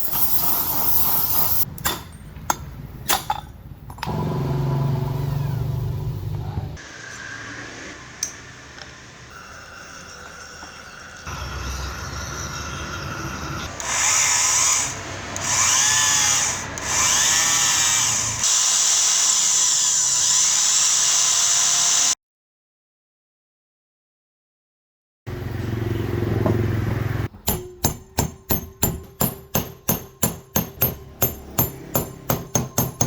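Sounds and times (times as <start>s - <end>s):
electric drill whining: 9.3s - 22.2s.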